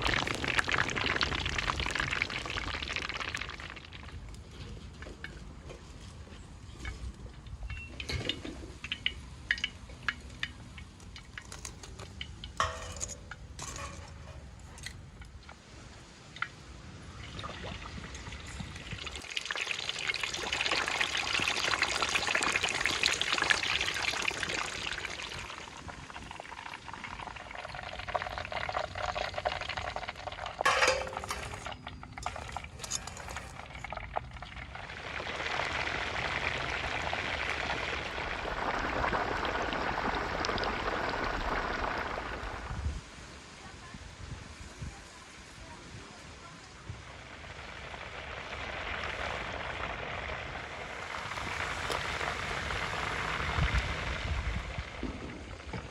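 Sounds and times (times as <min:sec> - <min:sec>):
utensils and dishes clinking: 0:11.4 - 0:14.9, 0:30.6 - 0:33.8
hiss of pouring or sizzling: 0:34.8 - 0:55.7.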